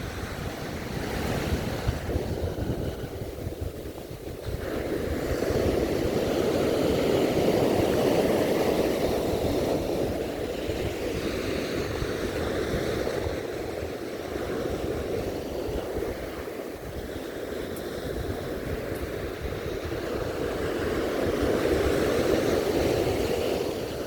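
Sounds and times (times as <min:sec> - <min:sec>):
sea waves breaking on beach: 0:00.0 - 0:24.0
wind buffeting microphone: 0:00.0 - 0:24.0.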